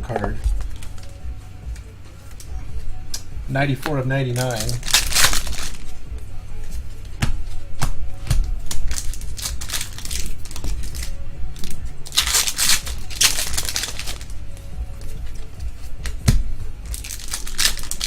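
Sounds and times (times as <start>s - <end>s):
foil wrapper crinkling: 4.3s - 5.8s, 8.6s - 14.3s, 16.9s - 18.0s
cards clicking as flipped: 4.3s - 5.9s, 7.8s - 14.4s, 15.3s - 18.0s.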